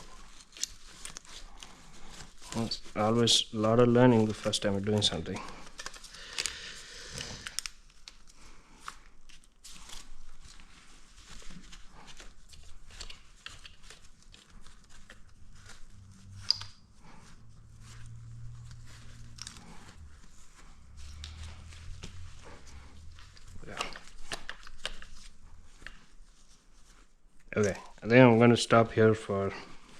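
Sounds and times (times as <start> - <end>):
hands handling parts and tools: 7.2 - 28.0.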